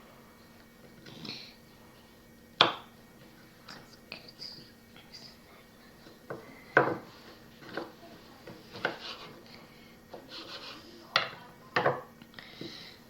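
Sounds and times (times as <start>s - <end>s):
knife knocking on chopping board: 6.3s - 7.1s
knife scraping board: 6.8s - 9.4s, 10.1s - 10.8s.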